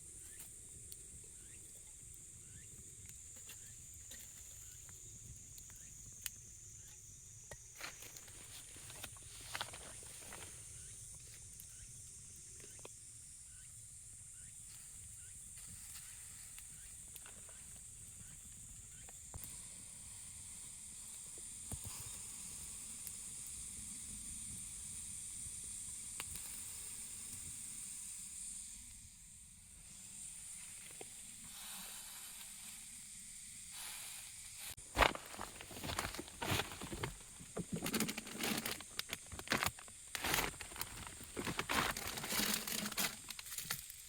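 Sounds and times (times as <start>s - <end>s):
high-pitched hiss: 0.0s - 44.0s.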